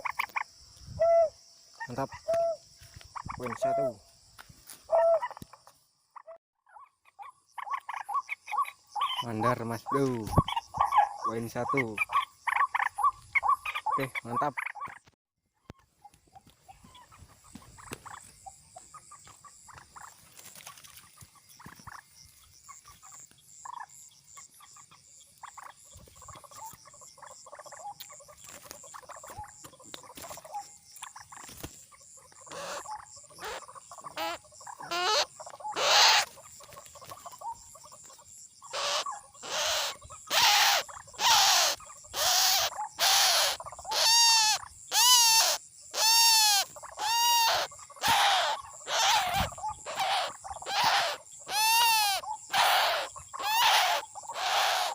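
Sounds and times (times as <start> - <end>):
waterhen harsh calls: 32.5 - 36.3, 38.7 - 54.9.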